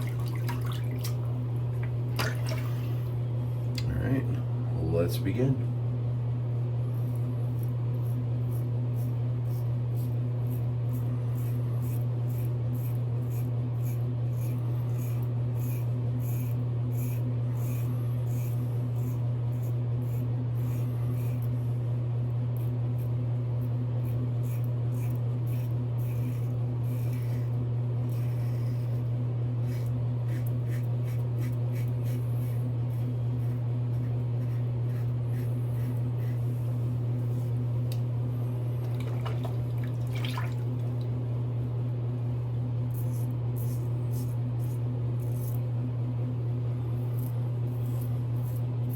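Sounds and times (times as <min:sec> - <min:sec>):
steady low hum: 0:00.0 - 0:48.9
razor scraping stubble: 0:06.9 - 0:21.7, 0:22.6 - 0:37.6, 0:42.9 - 0:45.6, 0:47.0 - 0:48.9.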